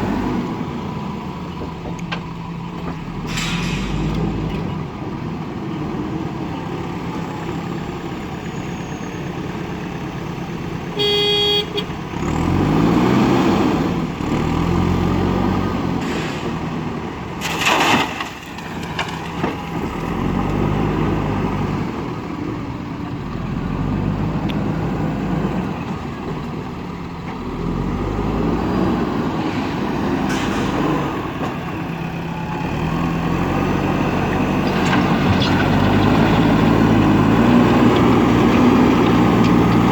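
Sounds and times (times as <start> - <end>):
diesel engine revving: 0.0 - 39.9
vehicle horn: 11.0 - 12.0.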